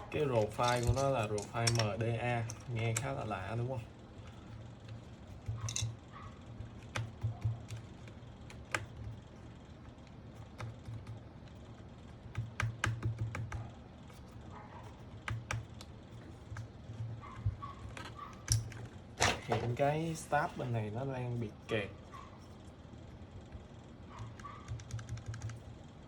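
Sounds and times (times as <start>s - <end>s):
mechanical keyboard typing: 6.6s - 14.3s, 15.1s - 18.9s, 24.2s - 25.7s.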